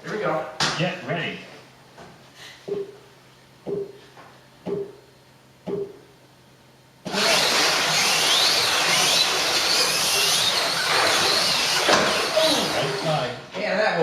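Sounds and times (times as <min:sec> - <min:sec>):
slot car motors whining: 0:07.0 - 0:13.8.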